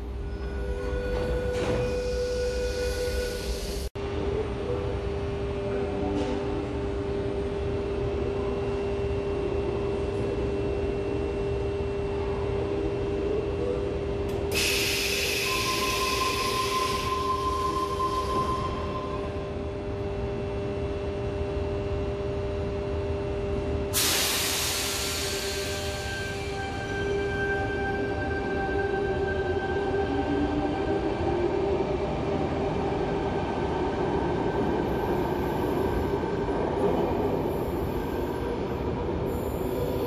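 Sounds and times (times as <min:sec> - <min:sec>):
train equipment hum: 0:00.0 - 0:40.0
air hiss: 0:24.0 - 0:26.5.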